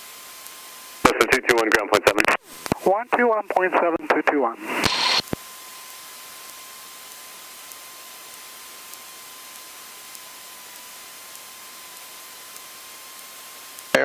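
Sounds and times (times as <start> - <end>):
radio headset hiss: 1.0 - 5.4
faint ticks: 7.6 - 14.0.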